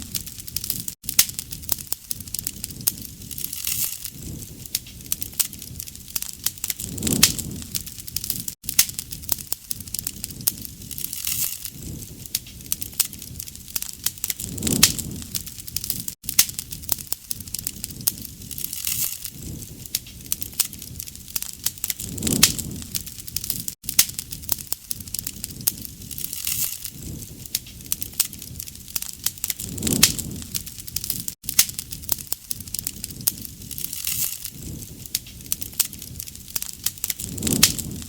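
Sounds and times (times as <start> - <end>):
bonfire crackling and popping: 0.0 - 38.0
low rush of flame: 0.0 - 38.0.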